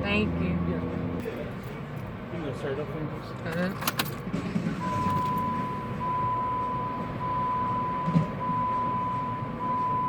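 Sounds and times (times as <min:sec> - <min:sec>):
electronic warning chime beeps: 0:04.8 - 0:10.0.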